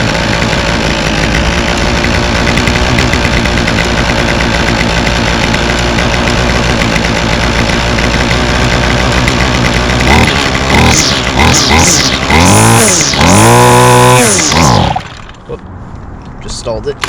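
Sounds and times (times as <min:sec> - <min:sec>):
string trimmer engine idling: 0:00.0 - 0:15.5.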